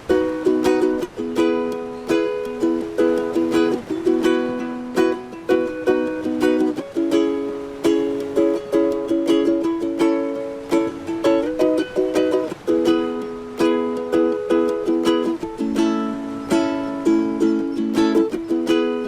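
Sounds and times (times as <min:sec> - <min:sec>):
ukulele strumming: 0:00.0 - 0:19.0.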